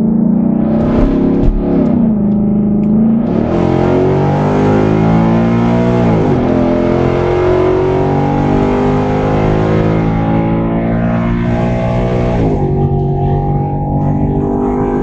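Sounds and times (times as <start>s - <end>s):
car engine accelerating: 0.0s - 15.0s
gear upshift: 0.6s - 3.0s.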